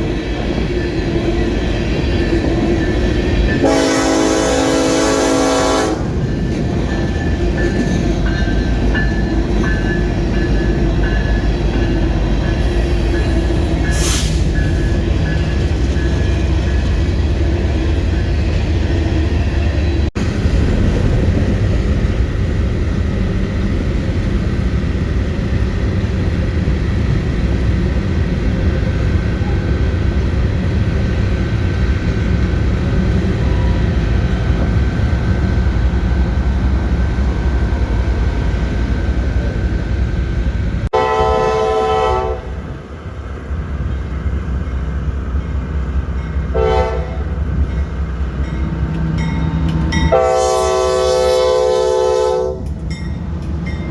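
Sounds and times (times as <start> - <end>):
train wheels rumbling on rail: 0.0 - 53.9
locomotive air horn: 3.6 - 6.2, 40.9 - 42.6, 46.5 - 47.4, 50.1 - 52.8.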